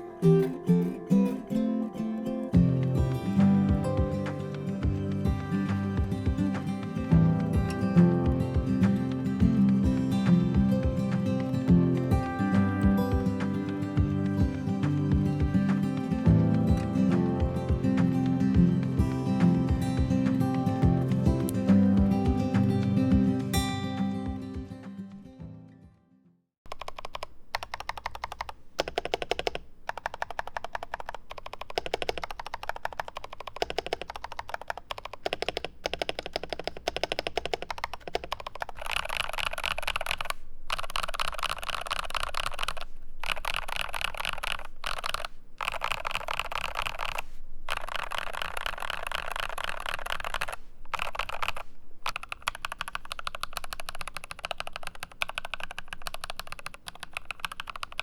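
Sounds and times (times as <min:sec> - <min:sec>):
mechanical keyboard typing: 0:26.7 - 0:58.0.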